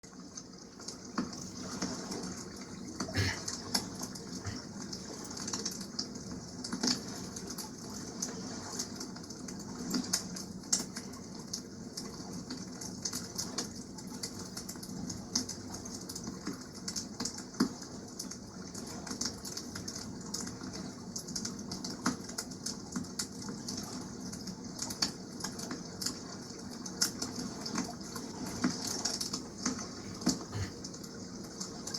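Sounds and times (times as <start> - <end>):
water washing: 0.9 - 7.4, 27.8 - 31.7.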